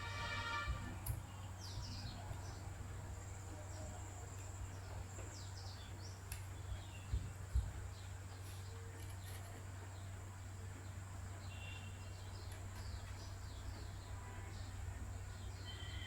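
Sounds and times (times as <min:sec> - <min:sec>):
bird chirps: 0:11.4 - 0:16.0.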